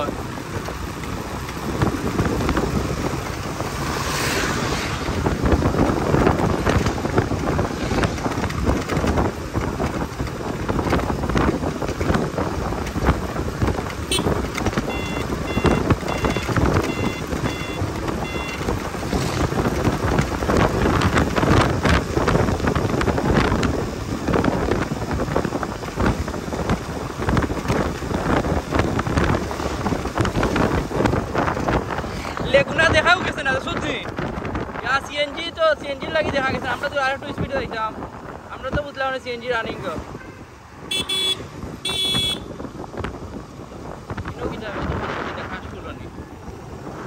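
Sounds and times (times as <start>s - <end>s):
motorcycle engine and road noise: 0.0s - 47.0s
wind buffeting microphone: 0.0s - 47.0s
evenly spaced beeps: 14.9s - 18.6s.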